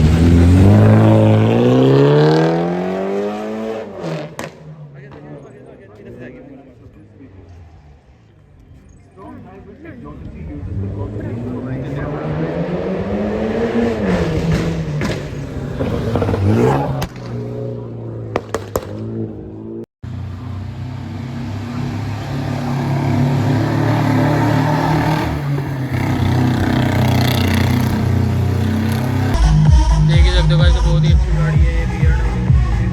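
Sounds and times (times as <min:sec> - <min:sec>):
car engine revving: 0:00.0 - 0:05.7, 0:10.1 - 0:29.4.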